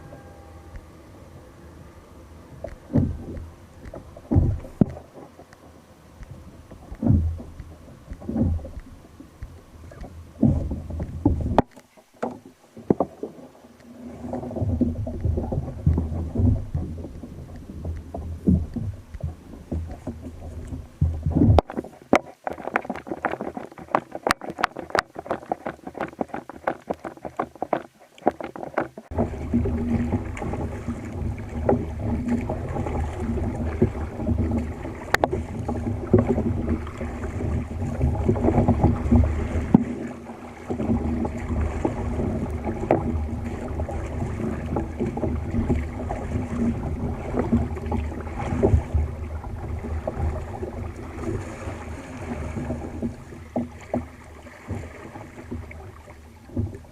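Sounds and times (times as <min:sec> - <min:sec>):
low rumble of water: 0:00.0 - 0:56.9
water sloshing against kayak hull: 0:00.0 - 0:56.9
clicks and knocks: 0:14.6 - 0:29.2.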